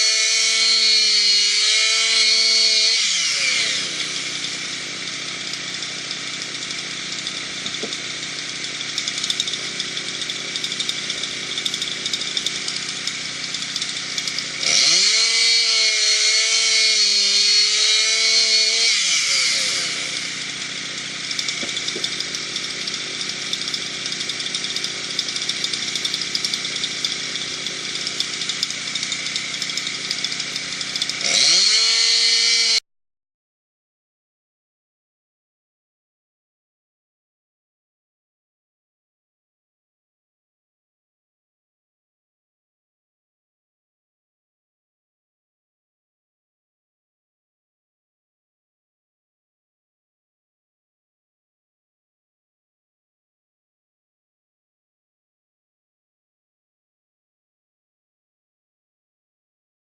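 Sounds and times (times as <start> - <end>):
chainsaw cutting wood: 0.0 - 32.8.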